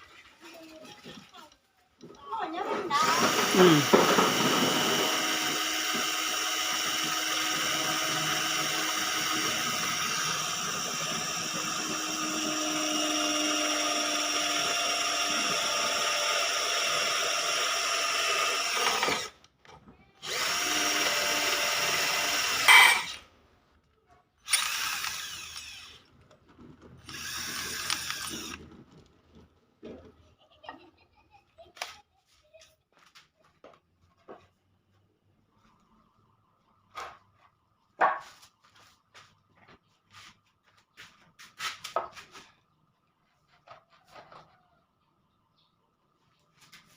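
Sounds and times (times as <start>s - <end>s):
electric drill running: 3.0s - 19.4s, 20.2s - 23.2s, 24.4s - 26.1s, 27.0s - 28.6s.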